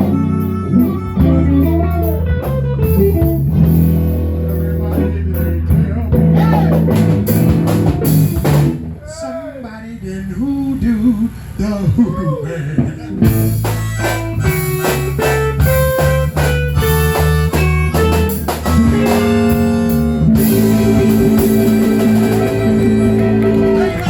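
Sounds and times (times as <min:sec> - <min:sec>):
electric blues band playing: 0:00.0 - 0:09.0, 0:12.6 - 0:24.0
electric guitar: 0:00.0 - 0:09.0, 0:12.8 - 0:24.0.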